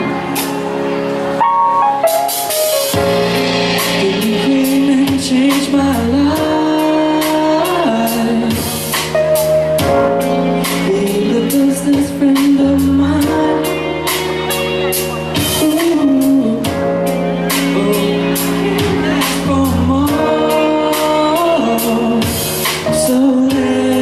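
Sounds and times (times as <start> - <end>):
band music with drum beat: 0.0 - 24.0
man singing a pop ballad: 3.7 - 9.1, 10.6 - 14.2, 15.3 - 24.0.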